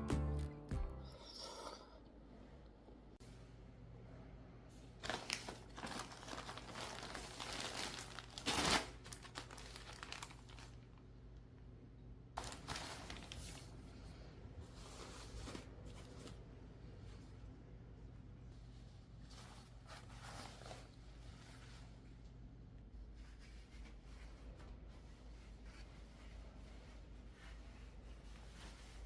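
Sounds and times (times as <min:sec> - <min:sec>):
packaging crinkling: 0:05.0 - 0:11.0, 0:12.4 - 0:13.7.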